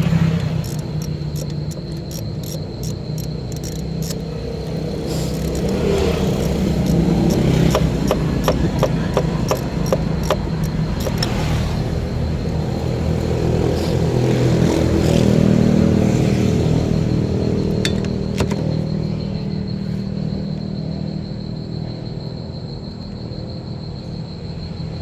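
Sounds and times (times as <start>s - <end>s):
quick sharp clicks: 0.0s - 11.7s
car engine running: 0.0s - 19.3s.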